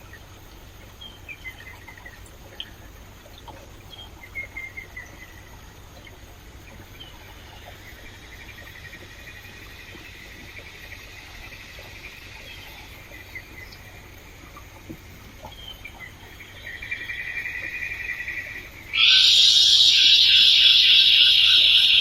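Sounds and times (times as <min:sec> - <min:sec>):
fast pulsing trill: 0:16.7 - 0:22.0.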